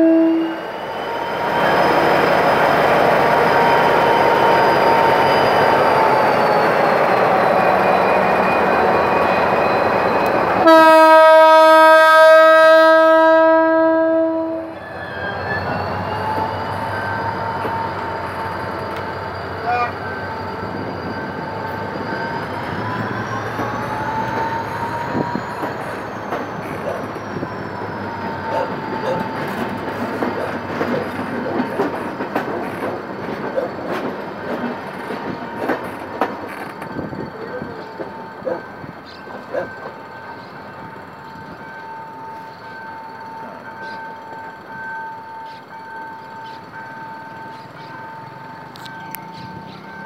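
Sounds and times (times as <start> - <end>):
train horn blast: 0.0 - 0.7, 10.6 - 14.8
diesel locomotive rumble: 0.0 - 50.0
wheels clicking over rail joints: 28.1 - 40.1.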